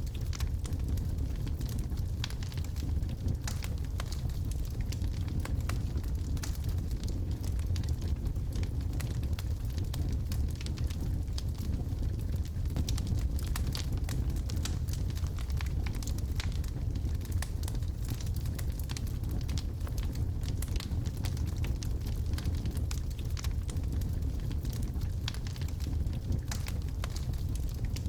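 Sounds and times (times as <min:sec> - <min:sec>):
fire crackles and pops: 0:00.0 - 0:28.0
low rumble of flames: 0:00.0 - 0:28.0.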